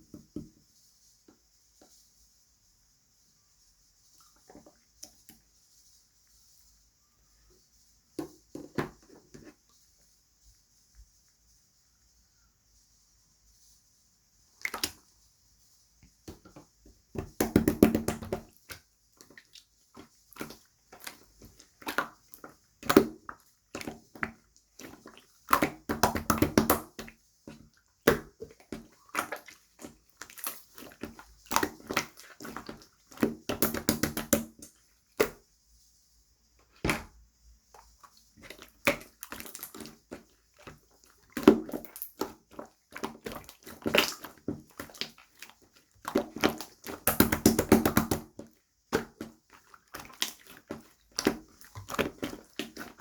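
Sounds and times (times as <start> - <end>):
hands squeezing slime: 14.6 - 15.1, 17.1 - 35.4, 36.8 - 53.0.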